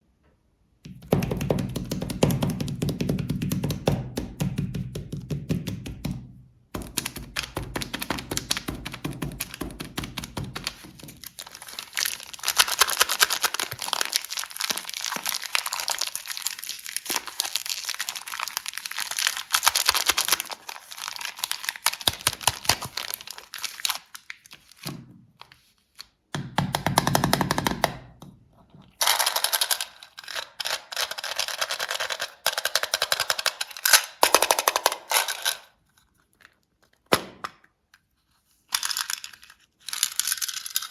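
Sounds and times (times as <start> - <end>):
plastic wrappers crinkling: 6.8 - 26.0, 29.0 - 37.1, 38.1 - 40.9.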